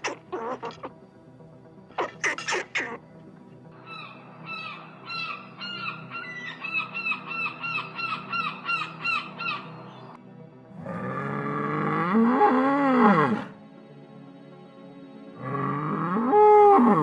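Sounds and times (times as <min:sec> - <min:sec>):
bird honking calls: 0:02.0 - 0:03.0.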